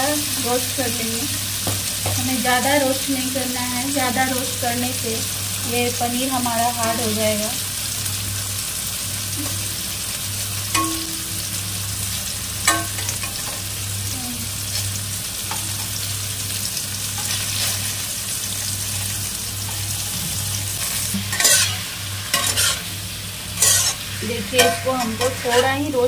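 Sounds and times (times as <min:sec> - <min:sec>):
paneer sizzling in hot oil: 0:00.0 - 0:26.0
pan clattering: 0:10.7 - 0:11.4
steel spatula scraping a pan: 0:17.2 - 0:18.0, 0:18.9 - 0:22.9, 0:23.6 - 0:25.8.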